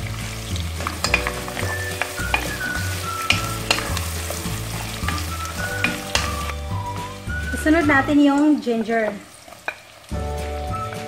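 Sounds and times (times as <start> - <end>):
background music: 0.0 - 9.1, 9.9 - 11.0
onions sizzling in hot oil: 0.0 - 11.0
wooden spoon knocking a pot: 0.8 - 6.5.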